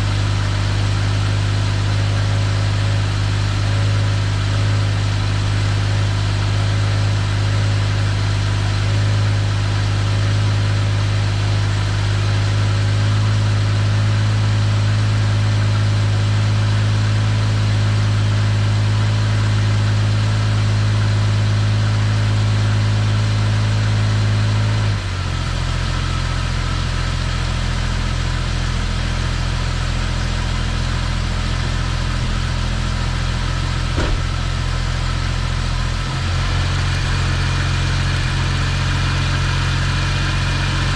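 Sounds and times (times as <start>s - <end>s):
car engine idling: 25.2s - 40.9s.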